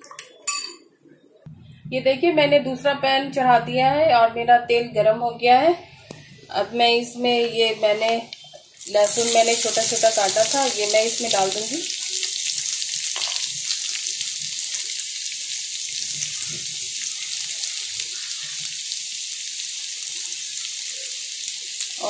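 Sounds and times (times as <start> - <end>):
garlic sizzling in hot oil: 7.6 - 22.0.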